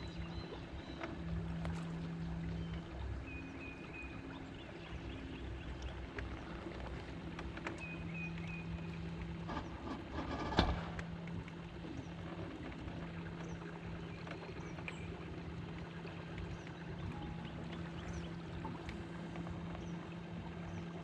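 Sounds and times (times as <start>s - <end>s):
boat engine hum: 0.0s - 21.0s
clattering knock on boat: 9.4s - 11.2s.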